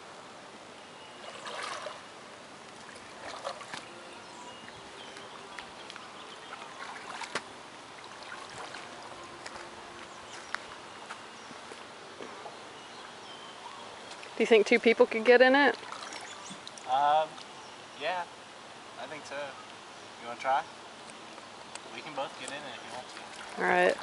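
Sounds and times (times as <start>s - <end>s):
paddle splashing water: 1.2s - 10.8s, 15.2s - 17.6s, 22.1s - 24.0s.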